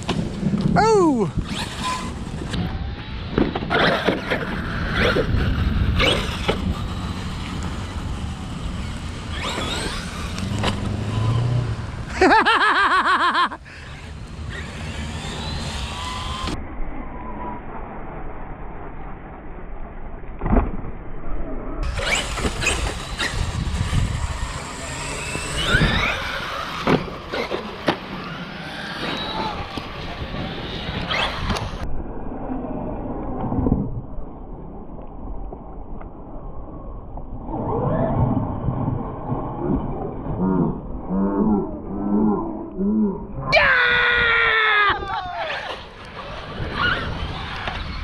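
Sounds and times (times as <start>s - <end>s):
electric toy truck motors whining: 1.4s - 12.4s, 13.3s - 16.6s, 21.8s - 31.9s.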